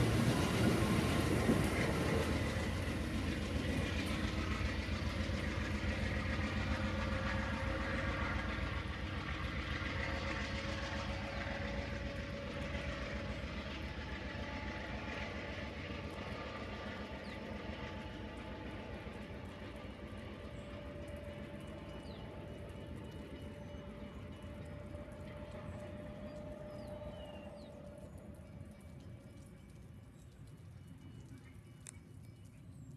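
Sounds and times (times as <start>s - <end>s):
train wheels rumbling on rails: 0.0s - 32.9s.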